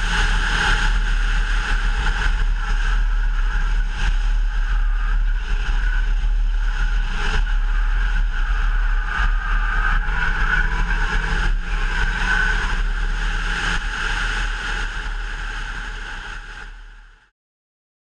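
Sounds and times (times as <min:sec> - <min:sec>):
heavy wind rush: 0:00.0 - 0:17.0
car engine at speed: 0:00.0 - 0:17.2.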